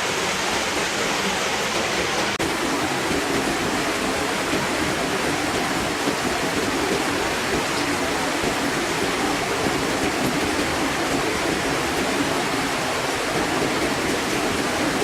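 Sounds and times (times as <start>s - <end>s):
waterfall splashing into pond: 0.0s - 15.0s.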